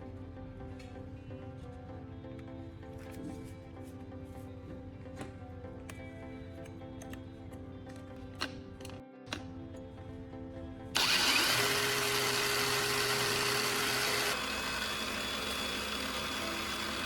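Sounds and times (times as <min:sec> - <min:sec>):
angle grinder whining: 0:11.0 - 0:17.0.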